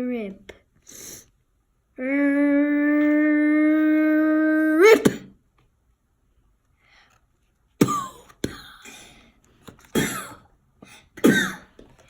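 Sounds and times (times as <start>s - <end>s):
person coughing and clearing throat: 4.8s - 5.4s, 7.8s - 9.1s, 9.9s - 10.5s, 11.2s - 11.8s.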